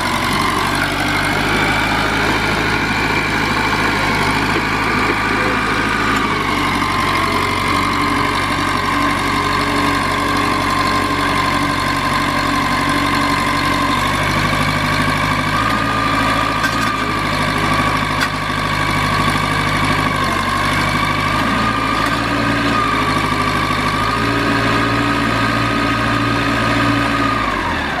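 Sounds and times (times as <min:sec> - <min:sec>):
steady whine: 0:00.0 - 0:15.0
backhoe engine idling: 0:00.0 - 0:28.0.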